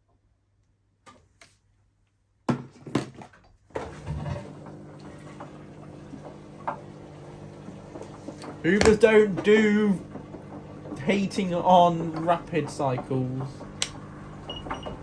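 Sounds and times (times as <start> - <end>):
washing machine running: 3.7 - 15.0
sharp knocks: 8.8 - 9.1.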